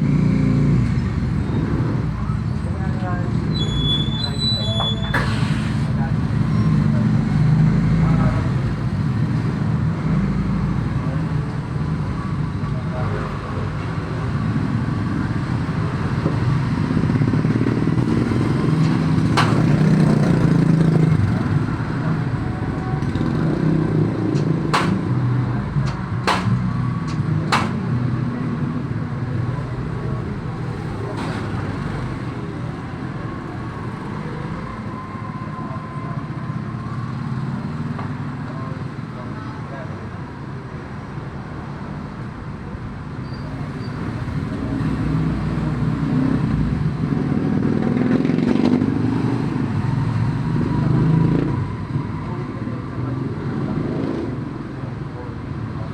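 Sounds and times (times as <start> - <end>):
sharp clicks or knocks: 18.8 - 20.0, 24.3 - 28.0.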